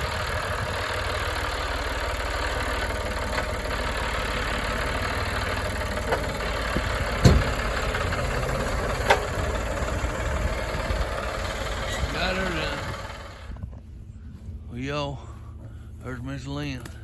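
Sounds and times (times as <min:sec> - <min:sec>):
truck engine idling: 0:00.0 - 0:17.0
sharp knocks: 0:06.1 - 0:09.6.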